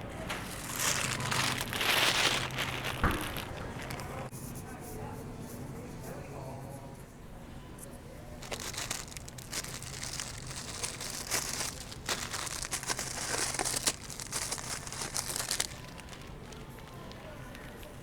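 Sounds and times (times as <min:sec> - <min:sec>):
plastic bags crinkling: 0:00.2 - 0:04.3, 0:08.4 - 0:18.0.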